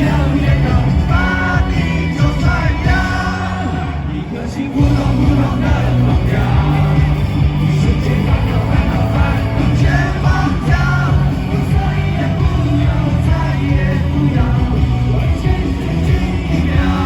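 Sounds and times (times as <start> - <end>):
live rock band playing: 0.0 - 17.0
person singing: 0.0 - 17.0.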